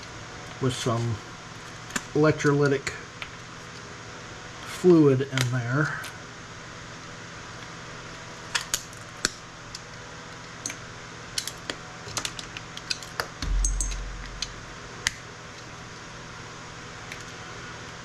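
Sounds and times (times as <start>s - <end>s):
low thump: 13.4s - 14.9s.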